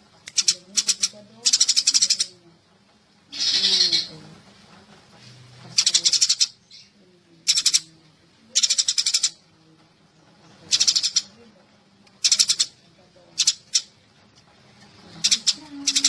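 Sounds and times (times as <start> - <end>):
sparrow chirping: 0.3 - 2.4, 3.3 - 4.2, 5.7 - 7.9, 8.5 - 9.4, 10.6 - 11.4, 12.2 - 14.0, 15.1 - 16.0.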